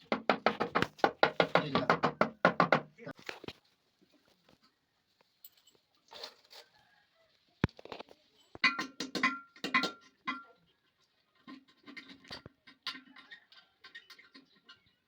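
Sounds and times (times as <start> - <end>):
scraping and clinking knocks: 11.4 - 15.0.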